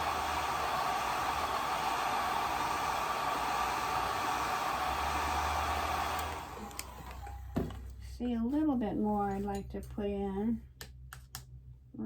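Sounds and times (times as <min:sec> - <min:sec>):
hair dryer blowing: 0:00.0 - 0:07.7.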